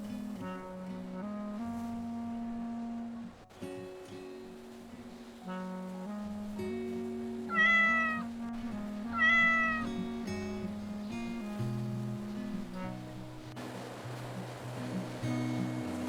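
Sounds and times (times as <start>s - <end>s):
background music: 0.0s - 16.0s
cat meowing: 7.5s - 8.3s, 9.1s - 9.9s.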